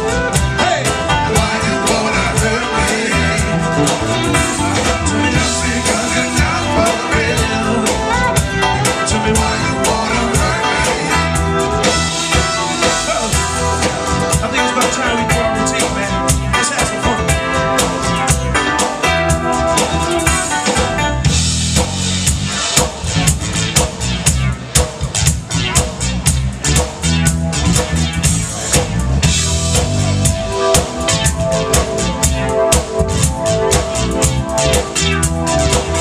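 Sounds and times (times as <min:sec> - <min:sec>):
drum kit: 0:00.0 - 0:36.0
guitar: 0:00.0 - 0:36.0
live soul band: 0:00.0 - 0:36.0
person singing: 0:00.6 - 0:11.5, 0:14.3 - 0:17.7.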